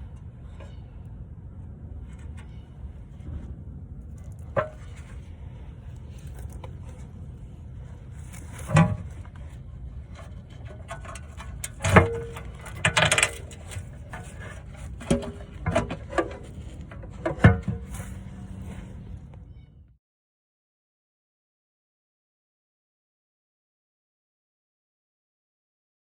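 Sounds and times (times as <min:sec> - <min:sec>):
low steady rumble: 0:00.0 - 0:20.0
metal tools clanking and knocking: 0:08.3 - 0:09.4, 0:10.1 - 0:18.9.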